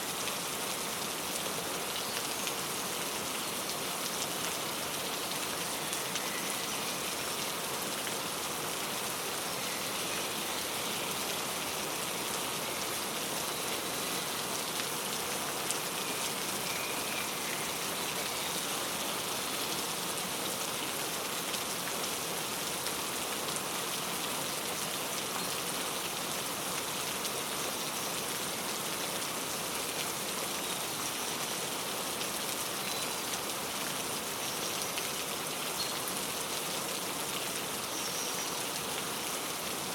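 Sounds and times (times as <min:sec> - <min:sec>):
steady rain falling: 0:00.0 - 0:39.9
faint bird chirps: 0:16.0 - 0:18.6.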